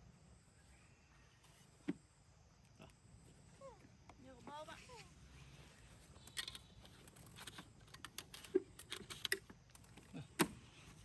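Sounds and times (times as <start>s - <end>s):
small clicks and knocks: 6.2s - 10.6s.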